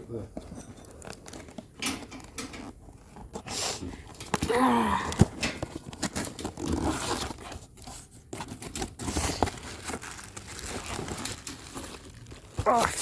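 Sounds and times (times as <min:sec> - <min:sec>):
packaging rustling and tearing: 0:00.8 - 0:13.0.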